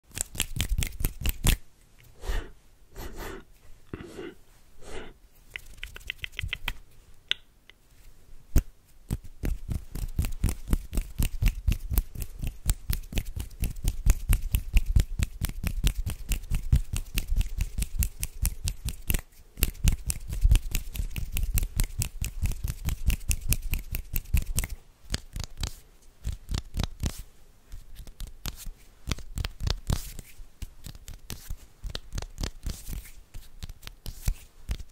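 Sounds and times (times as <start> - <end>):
hand swishes: 4.0 - 6.8.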